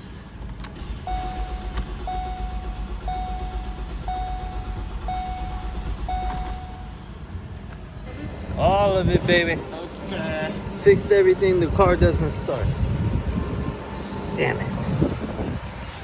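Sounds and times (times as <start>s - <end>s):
car starter cranking: 0.2s - 9.4s
car warning chime: 1.0s - 7.3s.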